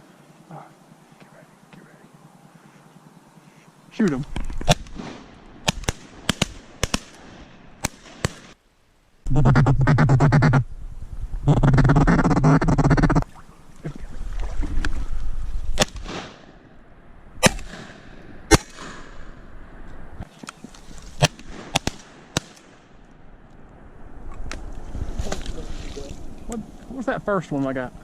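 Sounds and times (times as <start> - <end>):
shotgun shots: 4.6 - 8.6, 15.8 - 16.6, 17.4 - 19.2, 21.2 - 22.8.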